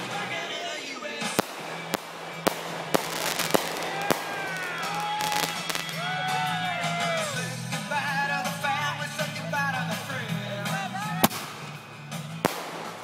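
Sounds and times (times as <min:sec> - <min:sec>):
firework bangs: 0:00.0 - 0:08.2, 0:11.2 - 0:13.0
whistling fireworks: 0:00.0 - 0:08.2, 0:11.2 - 0:13.0.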